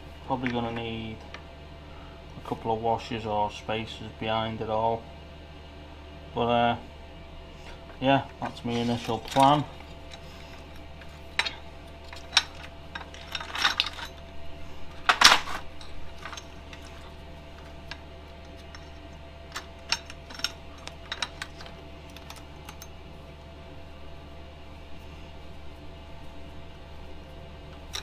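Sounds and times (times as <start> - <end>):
steady low hum: 0.0 - 28.0
metal tools clinking: 0.3 - 1.4, 7.8 - 23.0, 27.7 - 28.0.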